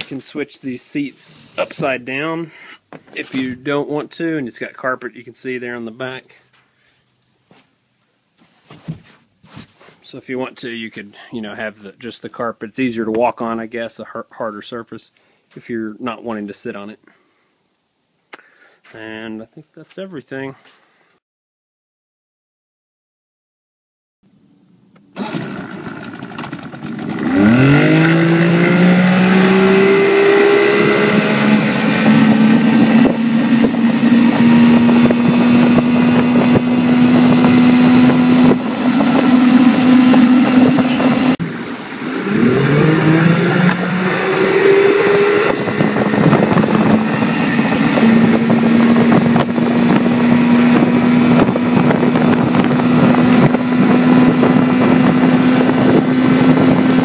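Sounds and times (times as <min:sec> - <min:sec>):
outboard motor revving: 0:25.1 - 0:57.0.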